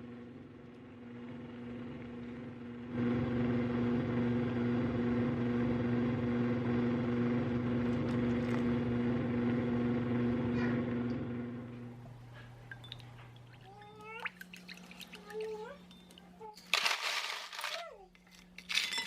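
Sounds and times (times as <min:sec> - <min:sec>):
kitchen appliance humming: 0:00.0 - 0:19.0.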